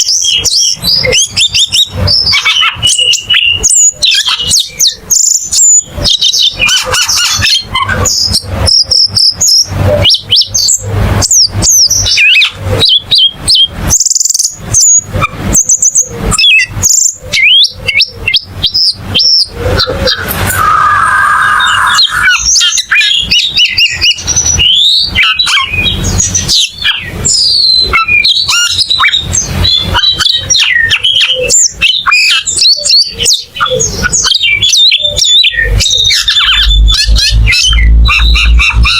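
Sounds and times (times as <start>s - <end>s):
bird singing whistled notes: 0.0s - 38.9s.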